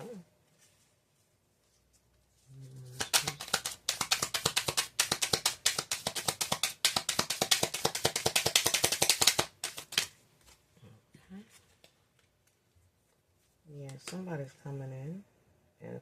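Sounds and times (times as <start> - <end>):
cards being shuffled: 2.6 - 10.2.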